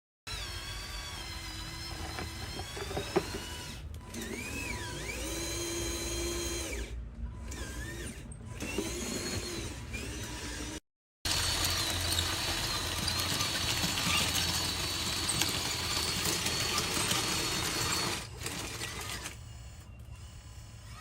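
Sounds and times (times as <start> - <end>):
electric motors whining: 0.3 - 21.0
gear chatter: 12.0 - 19.4.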